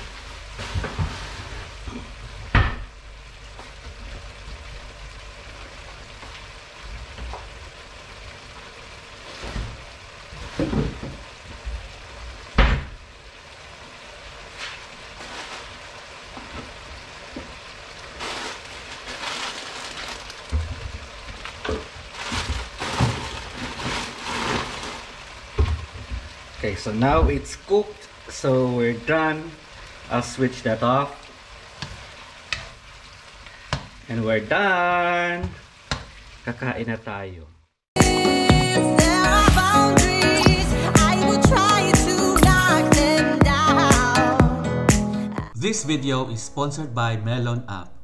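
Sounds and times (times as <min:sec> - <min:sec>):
food sizzling and bubbling in a wok: 0:00.0 - 0:37.7.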